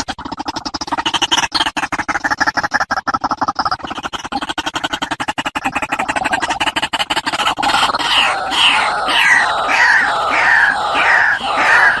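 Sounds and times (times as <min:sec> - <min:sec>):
waterhen calling: 0:07.7 - 0:12.0.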